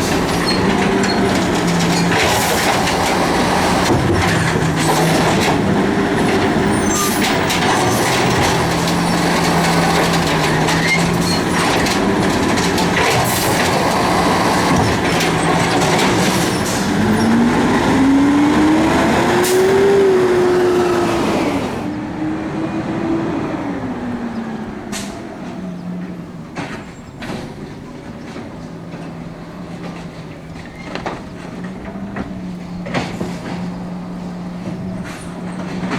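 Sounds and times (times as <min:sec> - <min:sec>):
diesel engine running: 0:00.0 - 0:27.1.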